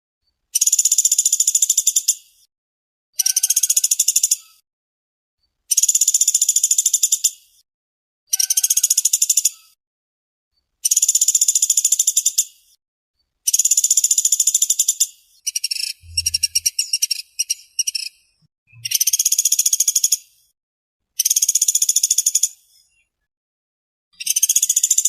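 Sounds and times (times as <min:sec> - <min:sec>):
woodpecker rattling trills: 0:13.5 - 0:18.1, 0:24.2 - 0:25.0.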